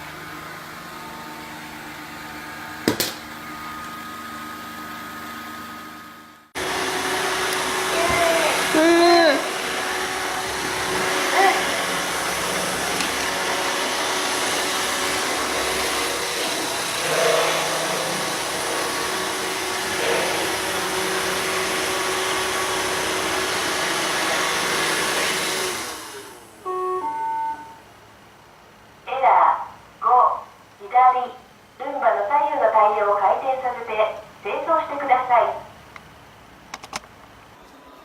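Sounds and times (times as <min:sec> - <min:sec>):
robot vacuum cleaner whirring: 0:06.6 - 0:26.4.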